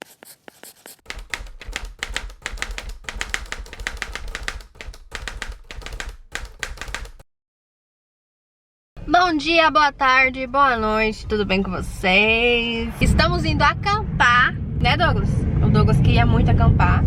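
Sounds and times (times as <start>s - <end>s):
rapid irregular tapping clicks: 1.1s - 7.2s
low rumble: 12.8s - 17.0s.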